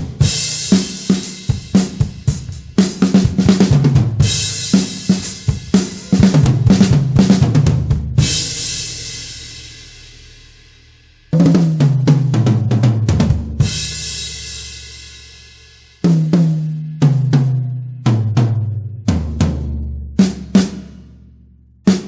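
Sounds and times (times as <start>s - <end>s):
tom drum fills: 0.0s - 9.0s.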